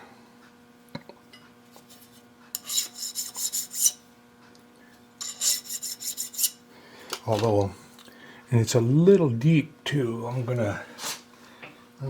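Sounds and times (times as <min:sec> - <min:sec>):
rasping strokes on workpiece: 0:02.6 - 0:04.0, 0:05.2 - 0:06.6.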